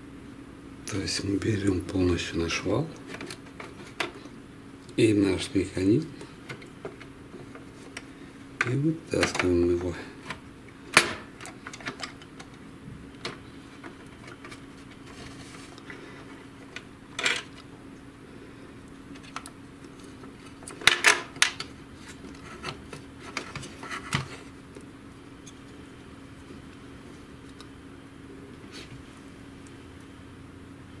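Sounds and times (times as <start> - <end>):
faint steady hum: 0.0 - 31.0
printer parts clicking and clattering: 3.0 - 4.3, 6.4 - 12.6, 13.2 - 15.7, 16.6 - 17.6, 20.3 - 24.5.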